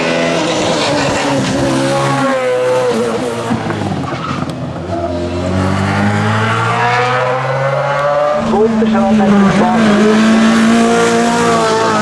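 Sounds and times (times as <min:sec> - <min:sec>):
race car engine running hard: 0:08.2 - 0:12.0.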